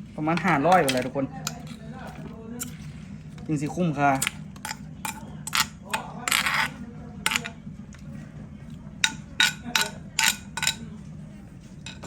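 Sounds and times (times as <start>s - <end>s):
dishes and utensils clinking: 4.1s - 7.6s, 9.0s - 10.9s, 11.8s - 12.0s.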